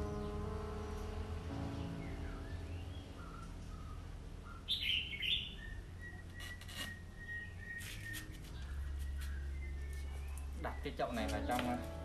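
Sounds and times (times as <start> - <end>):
bird chirping: 0.0 - 12.0
faint thin whistle: 6.0 - 9.5.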